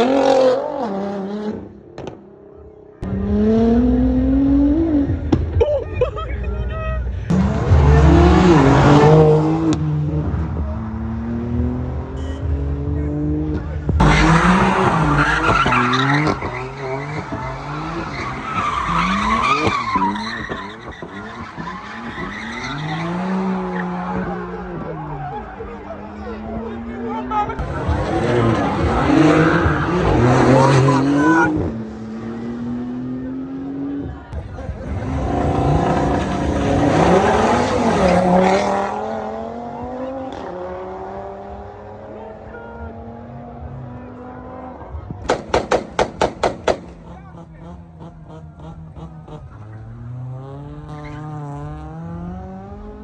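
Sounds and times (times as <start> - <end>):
car engine revving: 0.0 - 5.6, 7.0 - 53.0
tyres screeching: 14.0 - 24.5.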